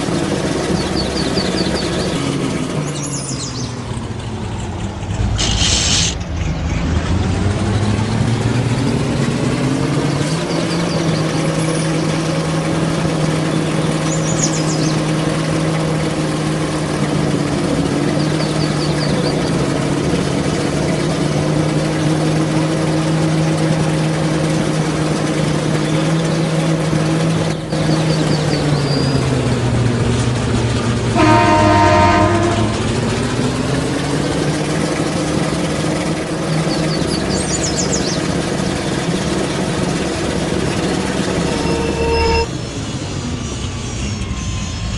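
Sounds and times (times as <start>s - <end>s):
truck engine under load: 0.0s - 44.9s
short hiss: 5.4s - 6.2s
horn blast: 31.1s - 33.2s, 41.2s - 42.5s.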